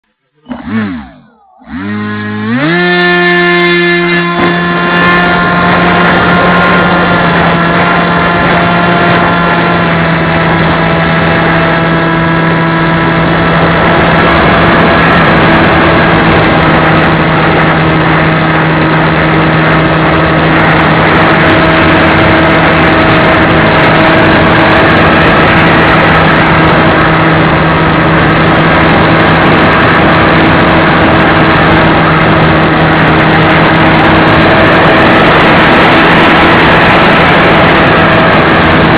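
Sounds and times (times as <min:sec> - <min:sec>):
model airplane motor drone: 0:00.3 - 0:38.9
rushing wind noise: 0:00.5 - 0:38.9.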